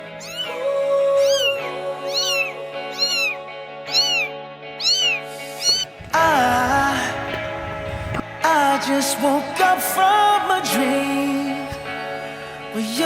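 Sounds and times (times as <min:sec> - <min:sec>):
kitten meowing: 0:00.2 - 0:00.6, 0:01.2 - 0:05.9.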